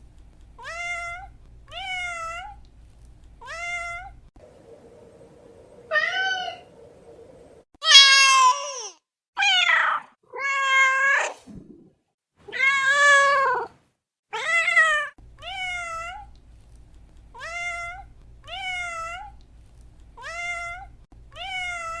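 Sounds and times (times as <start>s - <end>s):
cat meowing: 9.4s - 11.2s, 12.5s - 13.7s, 20.2s - 22.0s.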